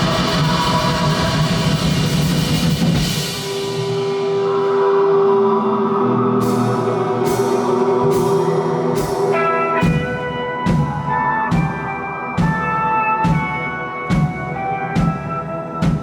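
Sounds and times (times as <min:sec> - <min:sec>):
steady drum beat: 0:00.0 - 0:05.0, 0:07.3 - 0:16.0
sustained guitar notes: 0:03.4 - 0:16.0.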